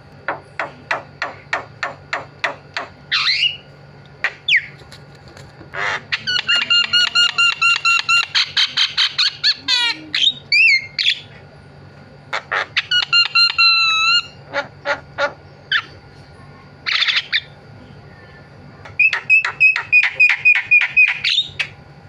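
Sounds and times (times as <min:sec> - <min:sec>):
bird singing varied song: 0:06.1 - 0:11.3, 0:18.9 - 0:21.7.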